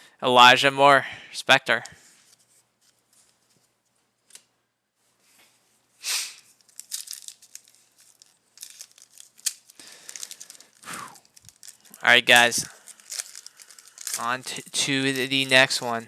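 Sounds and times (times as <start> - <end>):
wrapper and cards crinkling: 6.4 - 16.0
wrapper ripping: 6.4 - 16.0.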